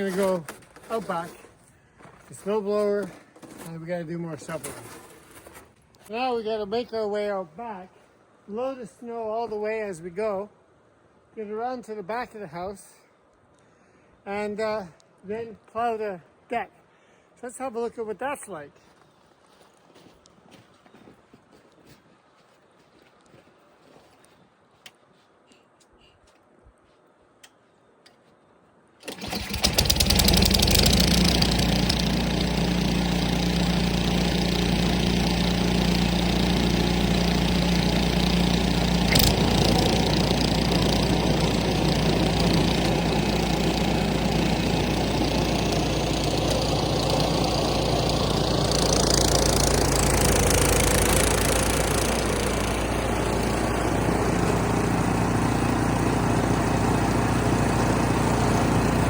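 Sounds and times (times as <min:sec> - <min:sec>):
snow blower engine running: 0:00.0 - 0:01.5, 0:02.4 - 0:06.2, 0:29.0 - 0:59.0.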